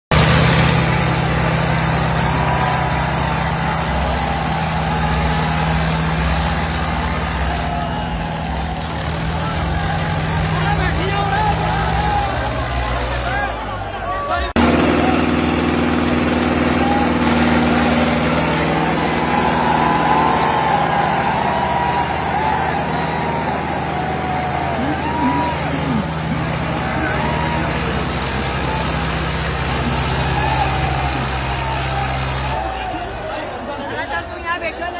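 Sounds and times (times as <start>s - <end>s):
tractor diesel engines running hard: 0.0s - 34.9s.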